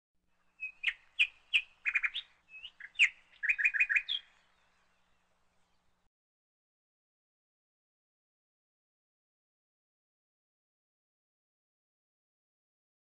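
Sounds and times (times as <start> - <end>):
bird chirping and trilling: 0.4 - 5.9.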